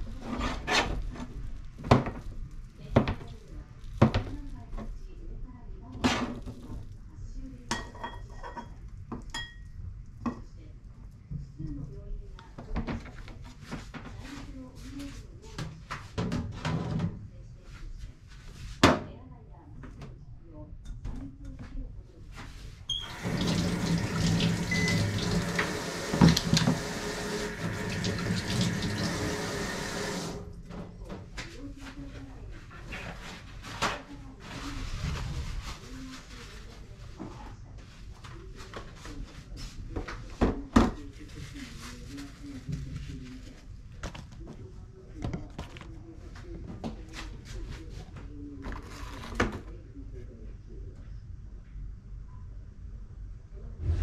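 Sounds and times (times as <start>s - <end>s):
tap running into sink: 22.9s - 30.4s
knocks under running water: 23.1s - 30.4s.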